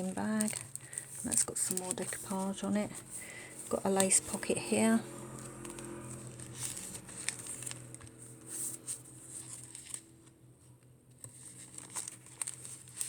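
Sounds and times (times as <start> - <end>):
paper pages rustling: 0.0 - 10.3, 11.1 - 13.0
low steady hum: 0.0 - 13.0.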